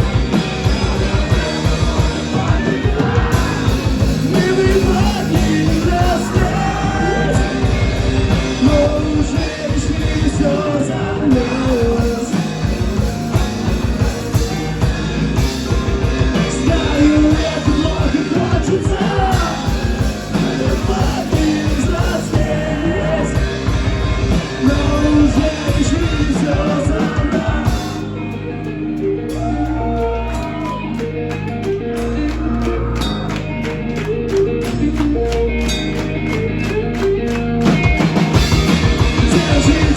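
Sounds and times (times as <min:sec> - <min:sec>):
rock band playing live: 0:00.0 - 0:39.9
person singing: 0:00.2 - 0:14.7, 0:16.3 - 0:23.5, 0:38.4 - 0:39.9.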